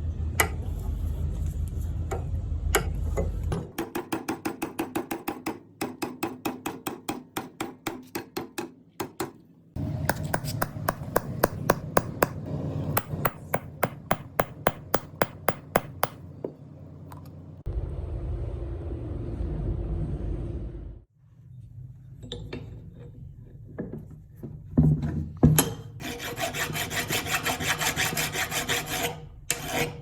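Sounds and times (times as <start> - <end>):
low machine hum: 0.0 - 3.7, 9.8 - 21.7
hammer blows on metal: 10.1 - 16.2.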